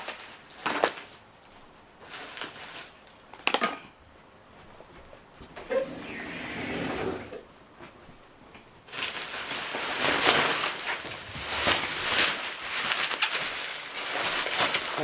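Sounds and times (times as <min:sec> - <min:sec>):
packaging rustling and crinkling: 0:00.0 - 0:01.3, 0:02.0 - 0:03.6, 0:08.9 - 0:15.0.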